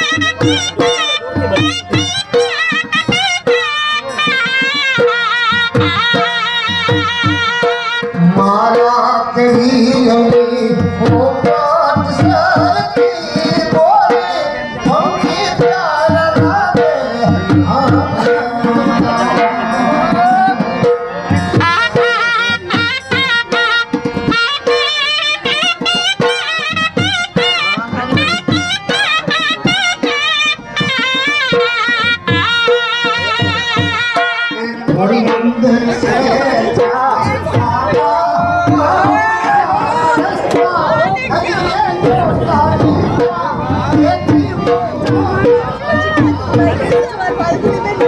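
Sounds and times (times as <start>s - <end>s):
double-reed pipe melody: 0.0s - 8.4s, 18.4s - 37.9s
steady drumming: 0.0s - 48.0s.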